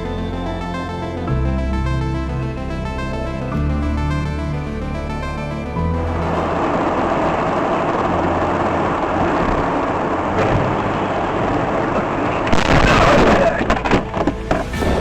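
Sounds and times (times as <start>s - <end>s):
low hum: 0.0s - 15.0s
vehicle engine and tyres rushing: 5.7s - 15.0s.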